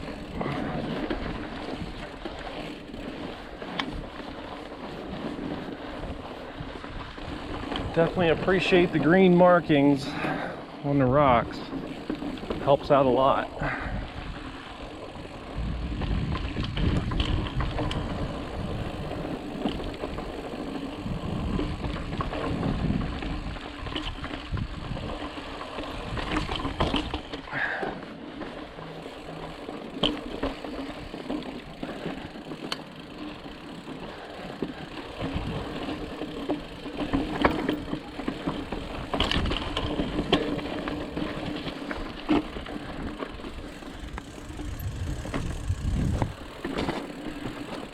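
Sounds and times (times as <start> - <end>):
bike tyres on rock: 0.0 - 47.9
wind on microphone: 15.5 - 19.2, 21.0 - 25.2, 43.6 - 46.5
chain and frame rattling: 43.6 - 47.9.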